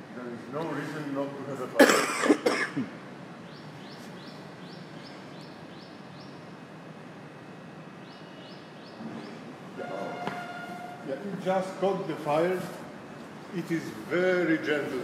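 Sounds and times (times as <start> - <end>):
bird chirping: 3.4 - 6.6, 7.9 - 11.1.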